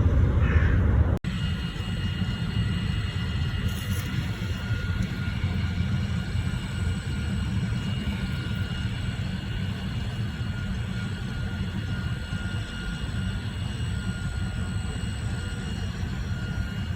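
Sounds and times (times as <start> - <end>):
high constant whistling tones: 0.0 - 16.9
low rumbling hum: 0.0 - 16.9.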